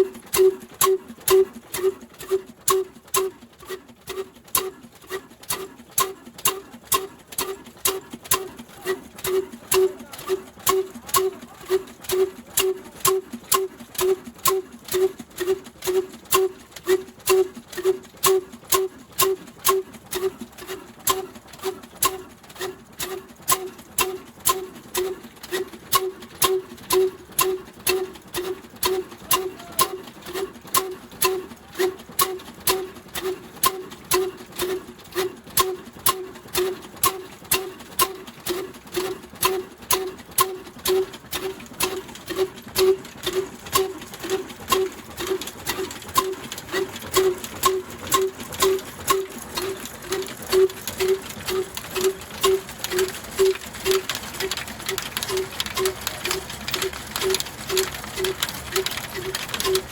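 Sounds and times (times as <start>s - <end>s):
diesel engine thumping: 39.4s - 56.4s.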